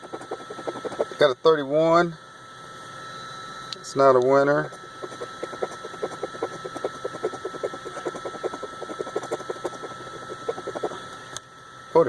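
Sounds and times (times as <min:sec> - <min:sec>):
knife scratching lottery ticket: 0:00.0 - 0:01.2, 0:04.6 - 0:11.1.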